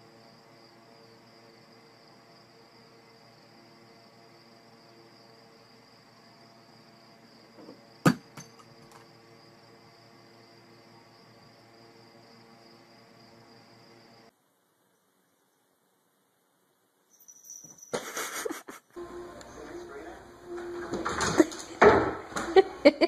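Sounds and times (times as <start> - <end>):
faint high-pitched whine: 0.0 - 18.0
sharp knocks: 8.0 - 8.5.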